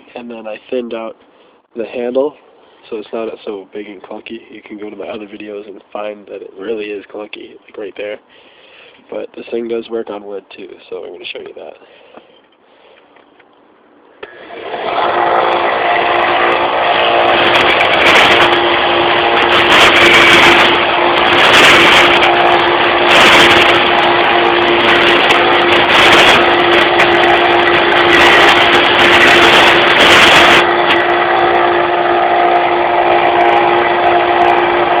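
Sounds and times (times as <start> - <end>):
belt sander humming: 14.2 - 35.0
wood sanding rasp: 15.6 - 31.2.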